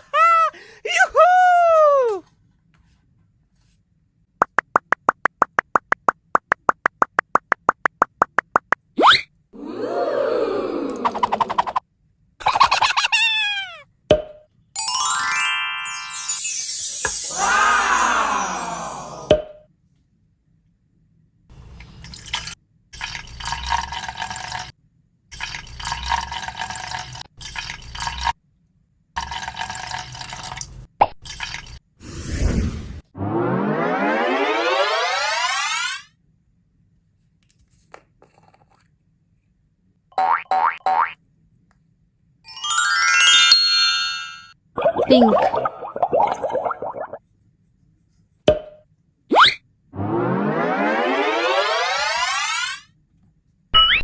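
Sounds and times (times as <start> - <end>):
cartoon pitched pops: 4.4 - 9.3, 49.3 - 52.6, 53.8 - 54.0.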